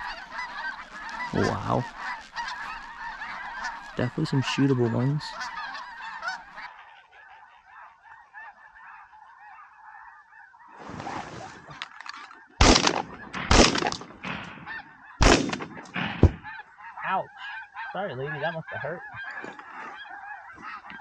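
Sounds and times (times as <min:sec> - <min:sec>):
geese honking: 0:00.0 - 0:21.0
shotgun blasts: 0:12.6 - 0:16.5.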